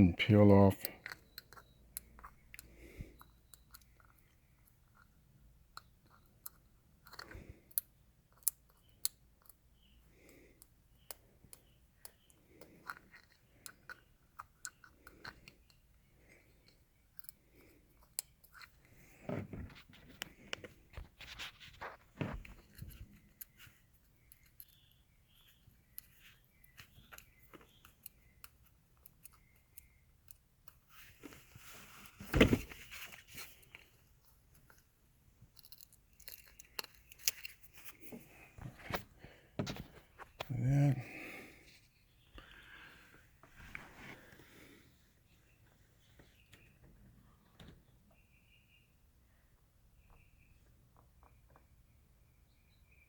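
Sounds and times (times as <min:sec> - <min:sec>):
handling noise: 0:31.1 - 0:33.8.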